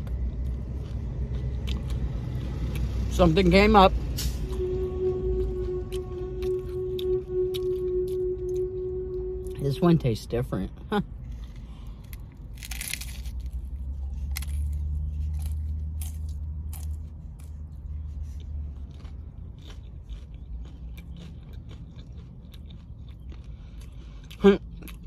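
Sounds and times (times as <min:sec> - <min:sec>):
taco shell crunching: 0:00.0 - 0:03.7, 0:11.2 - 0:25.0
low rumble: 0:00.0 - 0:21.6.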